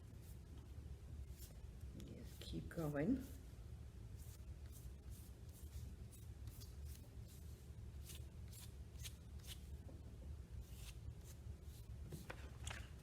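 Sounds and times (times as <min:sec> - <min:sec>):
steady low hum: 0:00.0 - 0:13.0
fork scratching on paper: 0:04.2 - 0:09.7.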